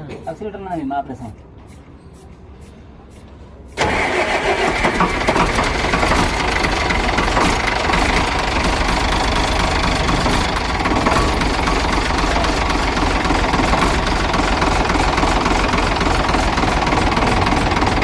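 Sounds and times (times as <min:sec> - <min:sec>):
diesel engine starting and running: 0:03.8 - 0:18.0.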